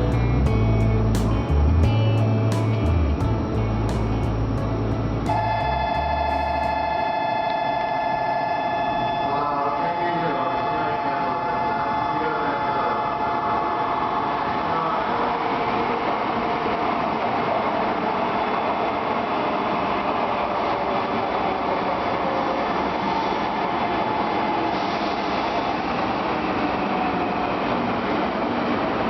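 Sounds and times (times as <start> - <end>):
train rushing past: 10.1 - 29.0.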